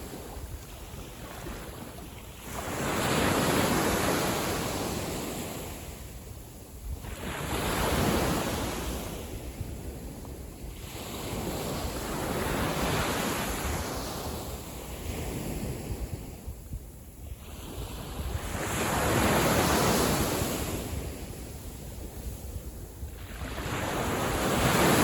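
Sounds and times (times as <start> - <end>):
small waves breaking on beach: 0.0 - 25.0
wind rumbling on microphone: 0.0 - 25.0.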